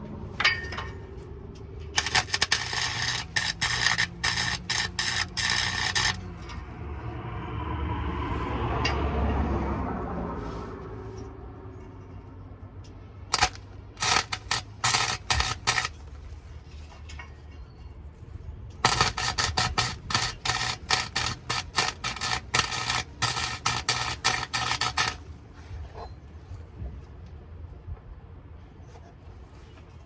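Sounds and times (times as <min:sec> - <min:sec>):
welding arc crackling: 0:02.0 - 0:06.3, 0:13.3 - 0:16.0, 0:18.8 - 0:25.2.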